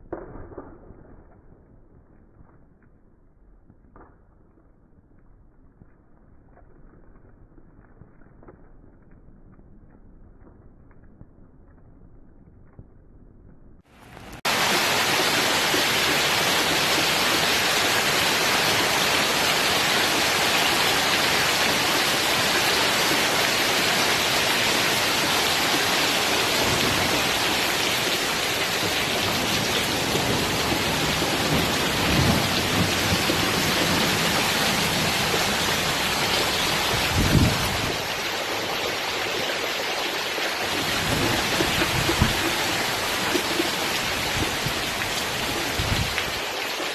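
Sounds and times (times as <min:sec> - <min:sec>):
heavy rain pouring: 0:13.9 - 0:46.9.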